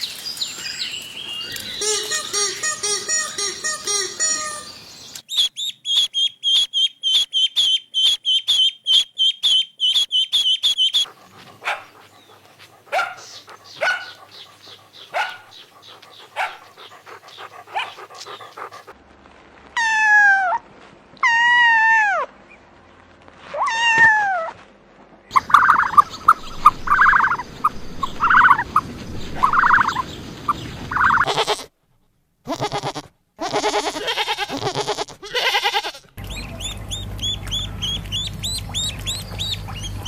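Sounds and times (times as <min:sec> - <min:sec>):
rapid high-pitched animal calls: 0:05.3 - 0:18.9.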